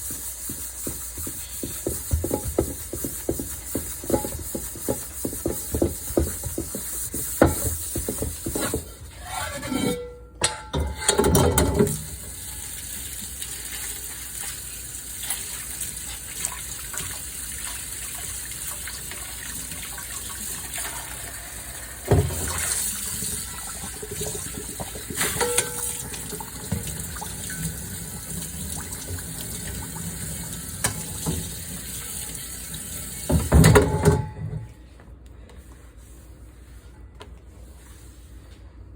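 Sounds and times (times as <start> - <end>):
tap water running over dishes: 0.0 - 9.0, 11.2 - 34.2
dishes clicking and clattering: 9.4 - 12.0, 25.2 - 26.2.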